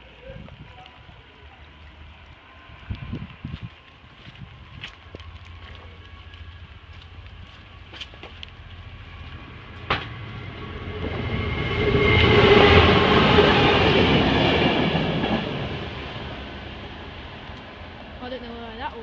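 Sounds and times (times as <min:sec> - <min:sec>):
train wheels clattering on rails: 0:07.1 - 0:16.2.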